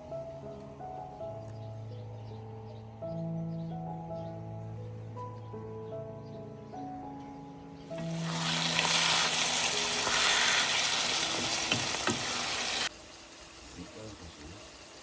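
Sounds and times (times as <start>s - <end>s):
soft background music: 0.0s - 12.9s
food sizzling in a pan: 8.0s - 15.0s.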